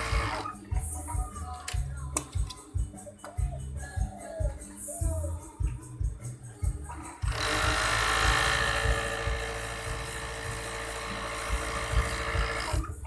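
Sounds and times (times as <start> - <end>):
sewing machine running: 0.0 - 0.4, 7.2 - 12.9.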